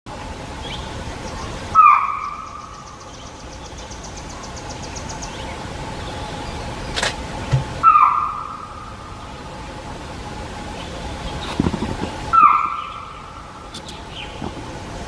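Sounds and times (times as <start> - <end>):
deer alarm call: 1.7 - 3.1, 7.8 - 8.9, 12.3 - 13.4.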